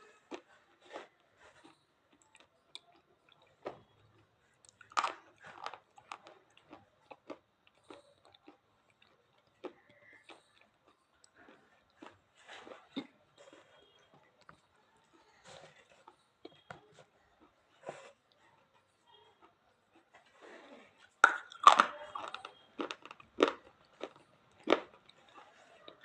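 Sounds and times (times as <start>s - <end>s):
crunchy chewing: 0.0s - 26.0s.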